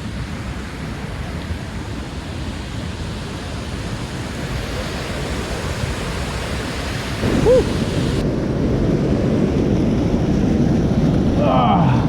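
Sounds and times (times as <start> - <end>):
fast-flowing creek water rushing: 2.8 - 8.2.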